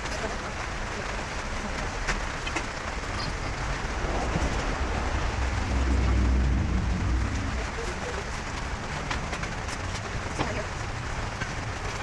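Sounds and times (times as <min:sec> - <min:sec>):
steady rain falling: 0:00.0 - 0:12.0
low rumble: 0:02.7 - 0:10.4.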